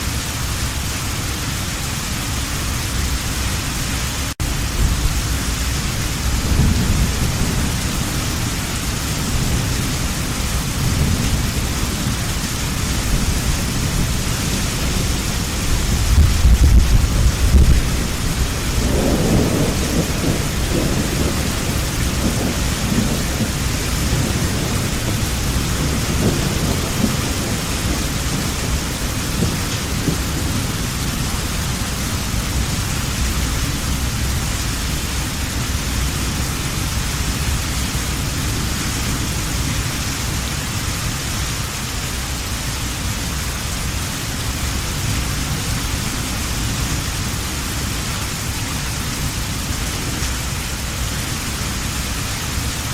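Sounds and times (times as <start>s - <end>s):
heavy rain falling: 0.0s - 52.9s
rolling thunder: 4.4s - 40.5s.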